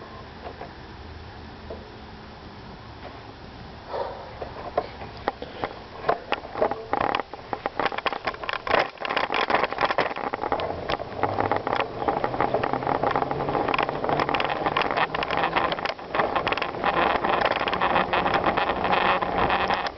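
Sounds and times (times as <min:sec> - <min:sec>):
tyres crunching on gravel: 0:04.1 - 0:19.9
bike rattling clicks: 0:04.4 - 0:19.9.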